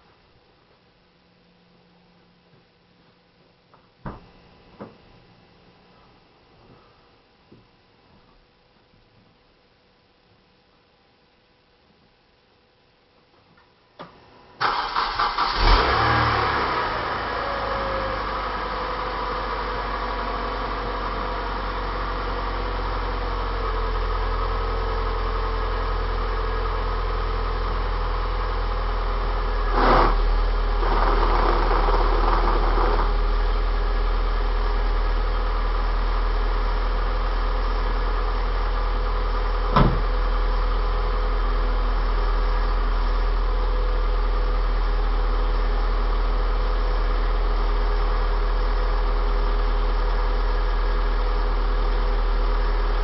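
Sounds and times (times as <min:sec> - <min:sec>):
car engine idling: 0:14.6 - 0:53.0.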